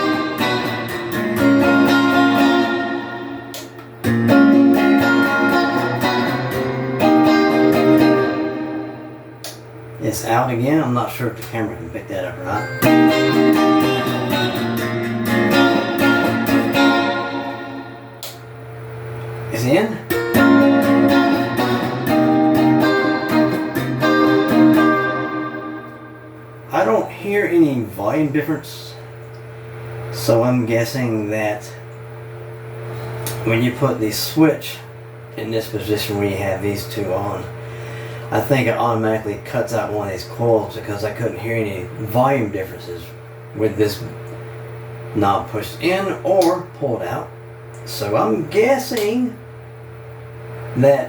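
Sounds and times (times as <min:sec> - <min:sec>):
clean electric guitar chords: 0:00.0 - 0:10.0, 0:12.3 - 0:26.7
low amplifier hum: 0:00.0 - 0:51.0.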